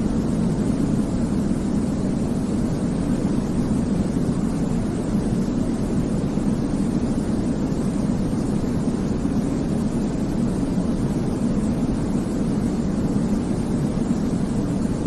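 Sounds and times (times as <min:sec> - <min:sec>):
deep white noise: 0:00.0 - 0:15.0.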